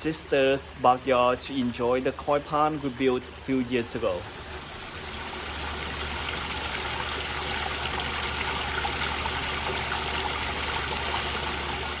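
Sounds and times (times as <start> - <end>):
water splashing down waterfall: 4.0 - 12.0.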